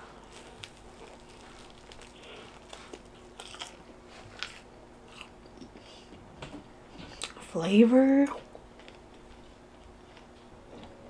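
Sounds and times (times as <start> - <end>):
crunchy chewing: 0.0 - 6.1, 8.7 - 10.4.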